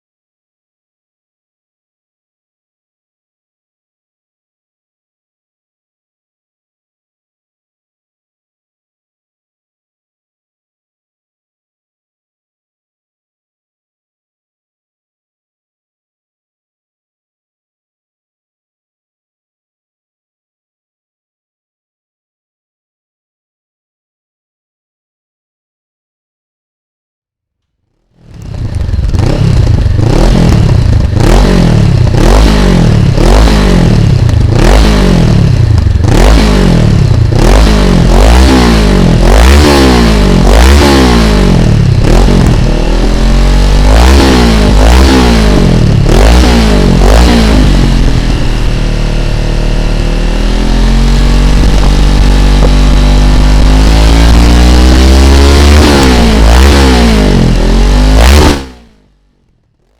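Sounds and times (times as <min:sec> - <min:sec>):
motorcycle engine revving: 0:27.9 - 0:59.9.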